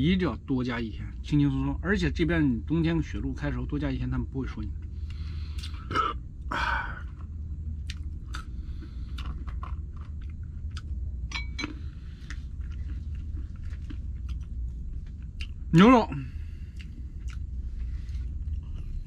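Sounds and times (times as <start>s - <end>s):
low hum: 0.0s - 19.0s
person chewing crunchy food: 4.7s - 19.0s.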